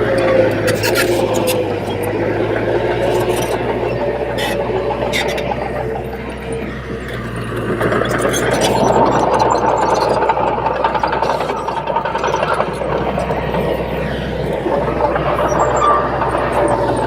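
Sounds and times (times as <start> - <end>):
bulldozer diesel engine clattering: 0.0 - 17.0
faint thin squeal: 15.0 - 17.0.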